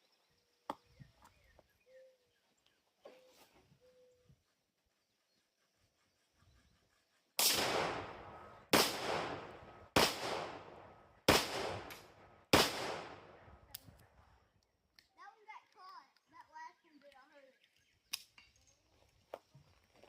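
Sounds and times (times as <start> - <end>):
revolver shots with echo: 7.4 - 13.4.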